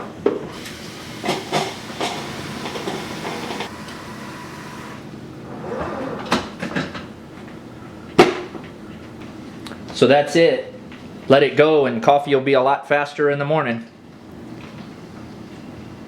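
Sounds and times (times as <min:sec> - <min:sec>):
coffee maker and carafe clunking: 0:00.0 - 0:04.0, 0:06.2 - 0:07.2
steady hiss: 0:00.6 - 0:05.0.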